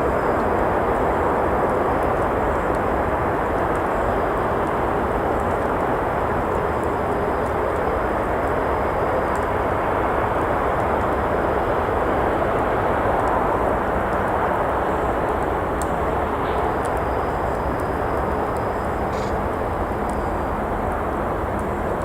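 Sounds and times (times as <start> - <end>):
campfire crackling pops: 0.2 - 22.0
road traffic rushing: 15.6 - 22.0.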